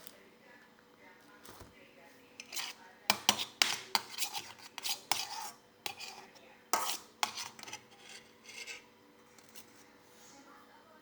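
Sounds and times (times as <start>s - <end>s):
spoon clinking and scraping a dish: 2.4s - 9.8s.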